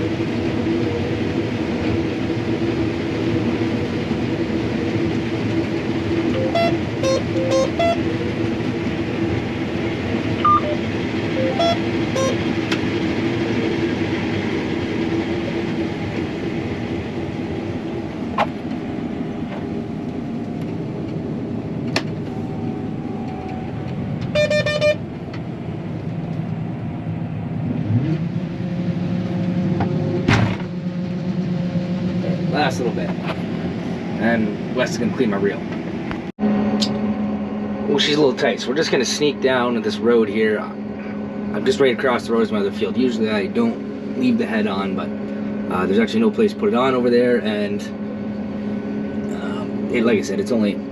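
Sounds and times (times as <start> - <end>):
combine harvester running: 0.0 - 50.9
short electronic beeps: 6.3 - 8.0, 10.4 - 10.8, 11.4 - 12.4, 24.4 - 25.0.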